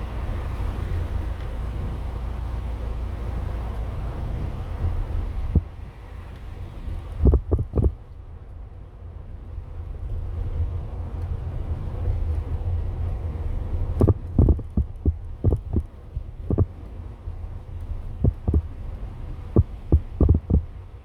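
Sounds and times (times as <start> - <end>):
van driving rumble: 0.0 - 21.0
short thumps: 14.0 - 16.7, 18.2 - 18.7, 19.6 - 20.7.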